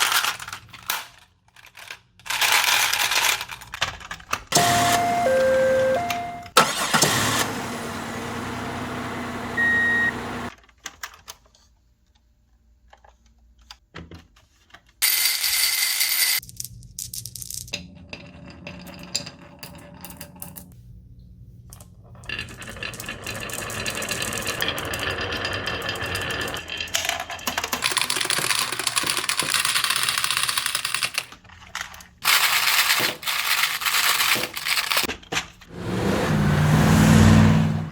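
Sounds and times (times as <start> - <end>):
marbles rolling rumble: 22.2 - 29.6
marbles clicking and clacking: 22.2 - 31.3.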